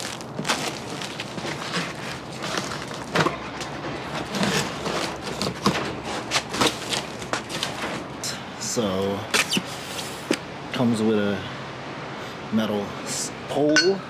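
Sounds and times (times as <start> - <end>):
cardboard rustling and scraping: 0.0 - 8.3, 9.3 - 10.4.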